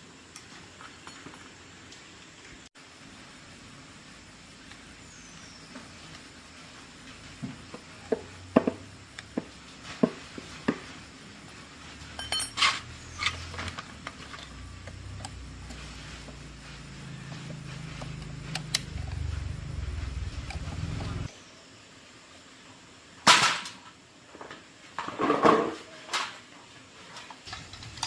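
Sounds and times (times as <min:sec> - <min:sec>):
ringing metallic clink: 0:12.2 - 0:12.7
low steady hum: 0:12.2 - 0:21.5.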